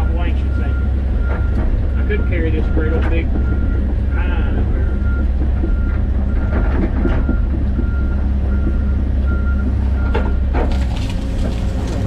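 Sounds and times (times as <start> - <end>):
backup alarm beeping: 0.0 - 10.4
excavator diesel engine running: 0.0 - 12.0.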